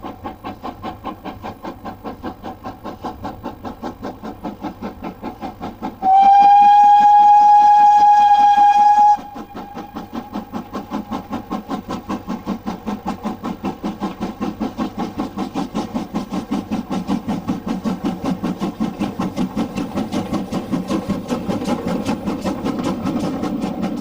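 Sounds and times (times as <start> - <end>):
locomotive exhaust chuffing: 0.0 - 24.0
steam locomotive whistle: 6.0 - 10.3.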